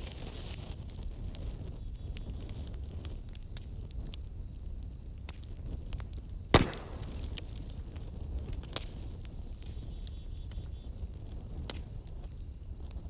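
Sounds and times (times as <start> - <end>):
wood fire burning: 0.0 - 13.0
loud sharp pop: 6.6 - 7.5.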